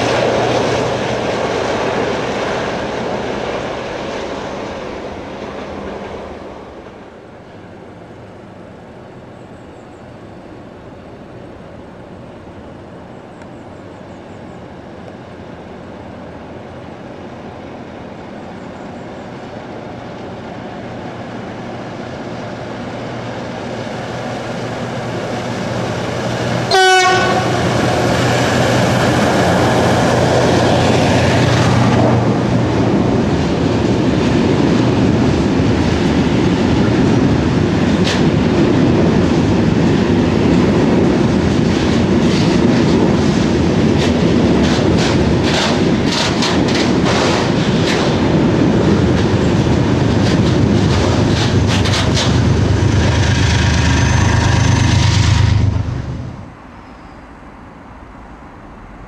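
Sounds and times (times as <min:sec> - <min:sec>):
train wheels rumbling on rail: 0:00.0 - 0:57.2
wheels clacking over rail joints: 0:23.1 - 0:56.2
locomotive horn blast: 0:26.7 - 0:28.1.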